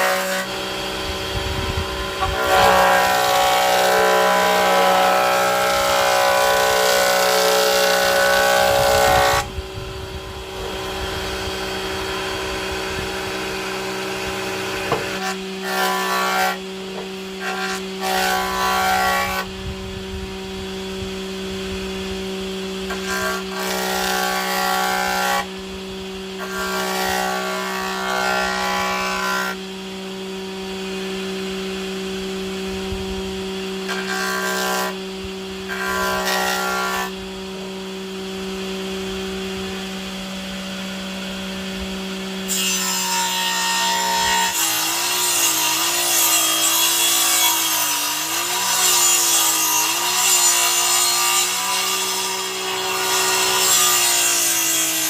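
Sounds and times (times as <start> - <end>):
electric power tool cutting wood: 0.0 - 55.0.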